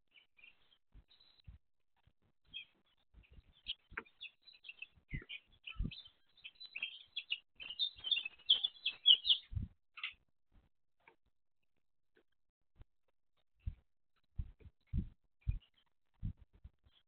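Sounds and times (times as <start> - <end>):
small bird chirping: 0.1 - 10.3, 13.6 - 17.0
dull low thumps: 5.1 - 6.0, 9.5 - 9.8, 13.6 - 16.9.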